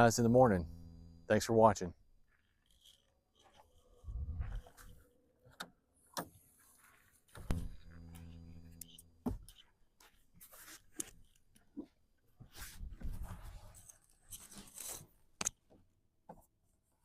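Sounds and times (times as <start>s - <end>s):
low mechanical hum: 0.0s - 1.8s, 2.7s - 5.0s, 7.4s - 9.6s.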